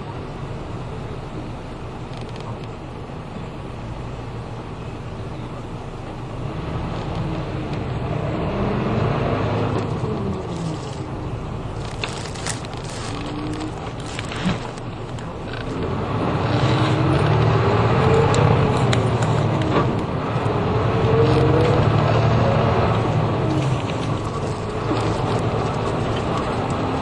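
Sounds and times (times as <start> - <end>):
bus engine and road noise: 0.0 - 27.0
light rattles and clicks: 11.7 - 15.9.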